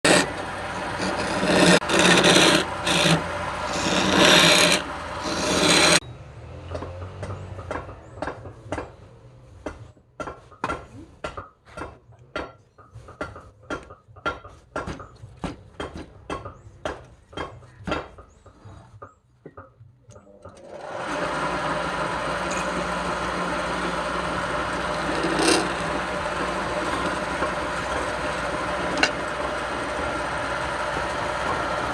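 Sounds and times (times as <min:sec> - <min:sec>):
rasp strokes on wood: 0:00.0 - 0:06.0, 0:20.9 - 0:31.9
tool rasping on wood: 0:00.0 - 0:06.0, 0:21.0 - 0:31.9.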